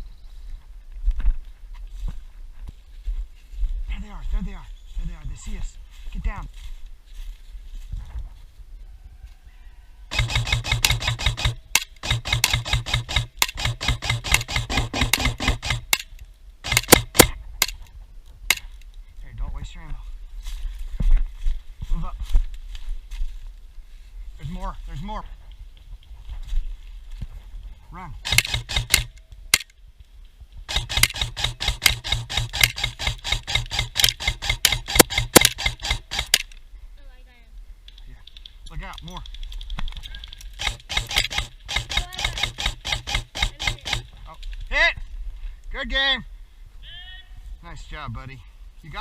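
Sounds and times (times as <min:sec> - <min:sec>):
running footsteps on forest floor: 0:00.1 - 0:10.5, 0:19.9 - 0:27.9
airsoft gun firing full auto: 0:10.1 - 0:17.4, 0:28.2 - 0:29.6, 0:30.7 - 0:36.5, 0:40.6 - 0:44.2
gear rattling: 0:10.1 - 0:17.8, 0:30.7 - 0:36.6, 0:39.2 - 0:44.3.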